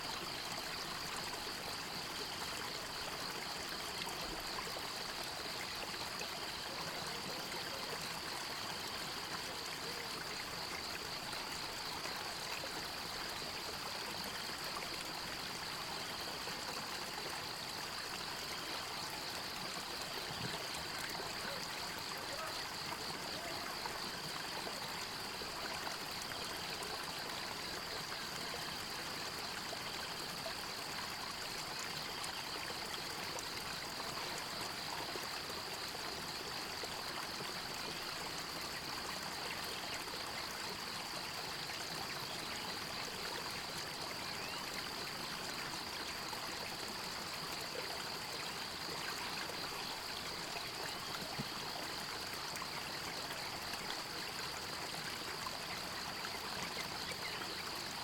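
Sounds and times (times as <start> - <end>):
stream water trickling: 0.0 - 58.0.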